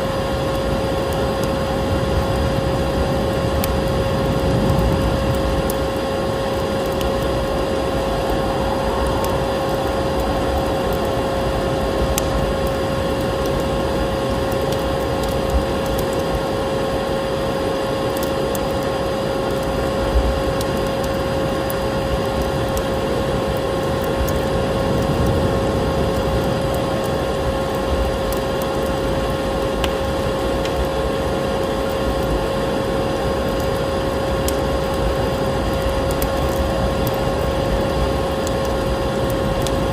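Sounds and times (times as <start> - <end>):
vacuum cleaner running: 0.0 - 14.5
wood fire crackling: 0.0 - 39.9.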